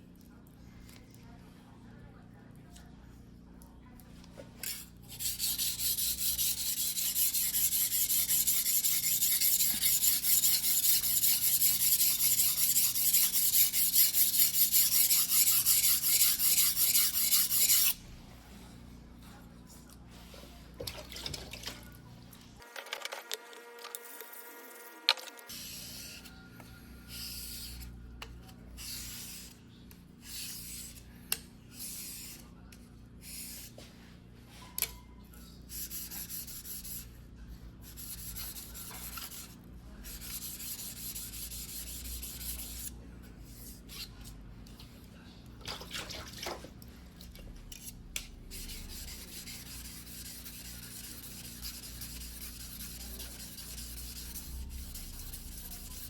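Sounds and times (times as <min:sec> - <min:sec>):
knife scraping on whetstone: 0:04.6 - 0:18.0.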